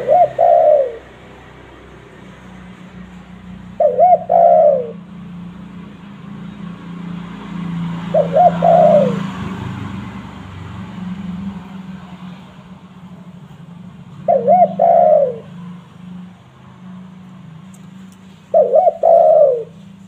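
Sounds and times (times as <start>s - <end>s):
dove cooing: 0.0s - 1.4s, 3.0s - 5.3s, 7.8s - 9.6s, 14.1s - 16.0s, 18.4s - 20.0s.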